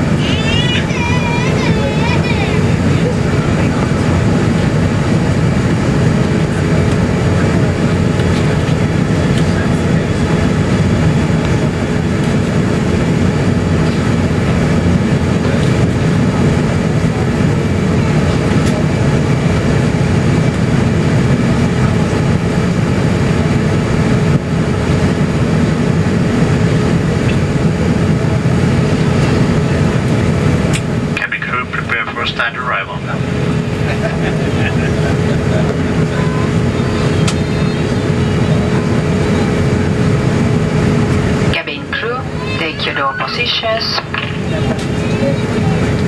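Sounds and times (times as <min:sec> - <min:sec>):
airplane cabin engine rumble: 0:00.0 - 0:46.0.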